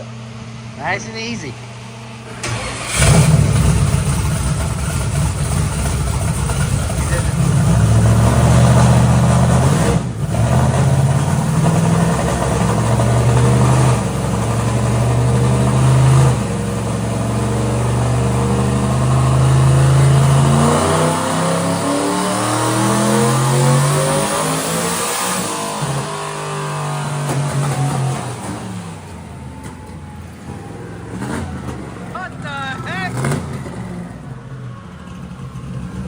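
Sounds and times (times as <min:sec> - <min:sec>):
truck engine revving on a dyno: 0:01.9 - 0:34.7.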